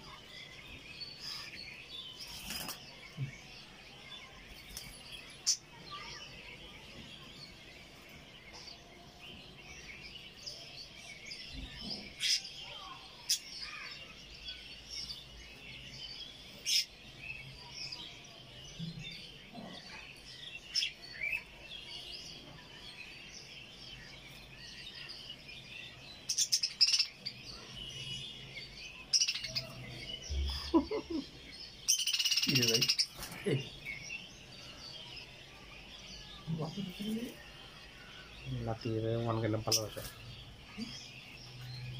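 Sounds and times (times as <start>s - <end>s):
budgerigars chattering: 31.9s - 33.8s, 38.6s - 40.1s.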